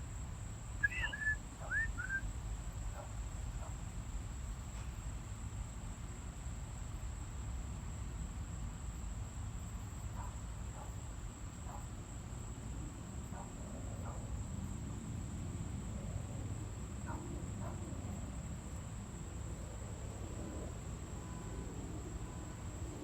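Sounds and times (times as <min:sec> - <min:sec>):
crickets trilling: 0:00.0 - 0:23.0
faint short calls: 0:00.8 - 0:02.2.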